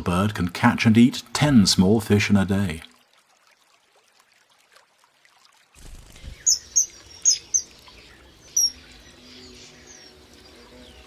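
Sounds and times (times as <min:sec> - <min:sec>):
faint outdoor background: 0:00.0 - 0:11.0
high-pitched bird calls: 0:06.1 - 0:11.0.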